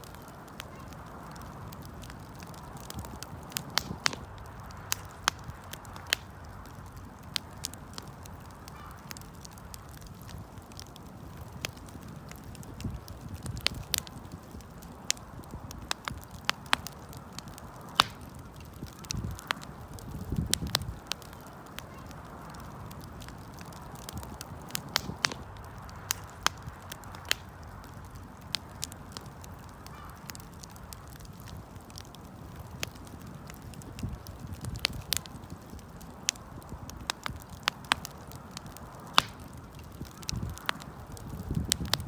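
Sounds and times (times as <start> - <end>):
campfire crackling and popping: 0.0 - 42.0.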